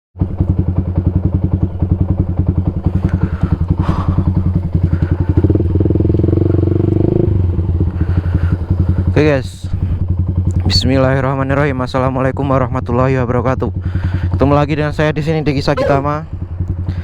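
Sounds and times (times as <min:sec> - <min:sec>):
motorcycle engine idling and revving: 0:00.2 - 0:17.0.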